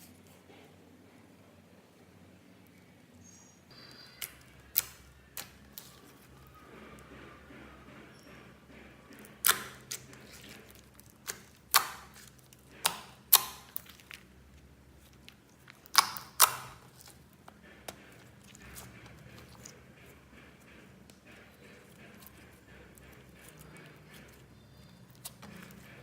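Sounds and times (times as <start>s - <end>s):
slime squeezed with wet pops: 9.4s - 14.2s, 15.7s - 17.2s.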